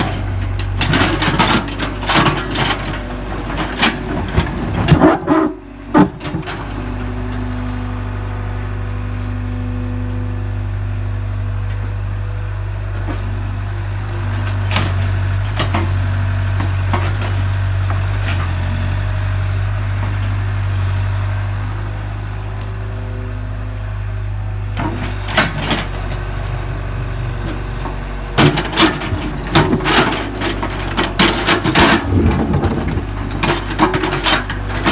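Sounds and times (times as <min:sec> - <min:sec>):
digging knocks and clatter: 0:00.0 - 0:07.8, 0:14.0 - 0:21.3, 0:24.7 - 0:34.9
excavator diesel engine running: 0:00.0 - 0:34.9.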